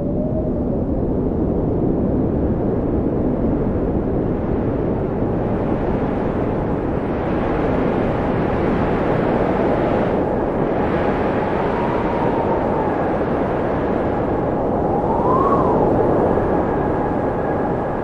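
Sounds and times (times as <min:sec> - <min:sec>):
faint wind whistle: 0:00.0 - 0:02.4, 0:05.0 - 0:18.0
wind blowing: 0:00.0 - 0:18.0.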